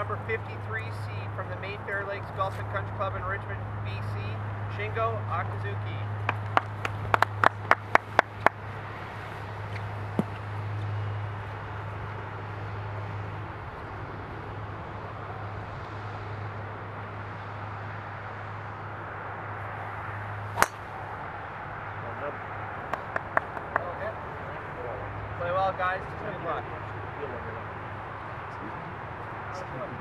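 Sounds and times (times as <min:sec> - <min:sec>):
golf club striking ball: 0:20.5 - 0:21.0.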